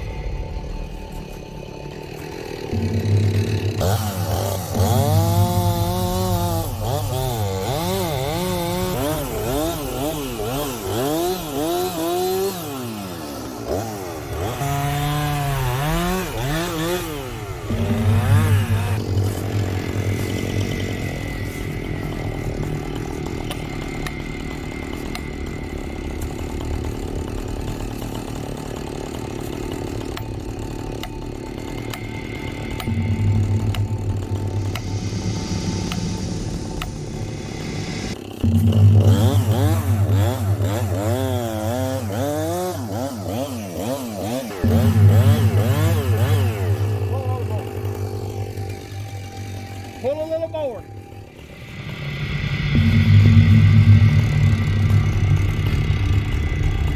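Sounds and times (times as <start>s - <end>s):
chainsaw cutting wood: 1.3s - 56.9s.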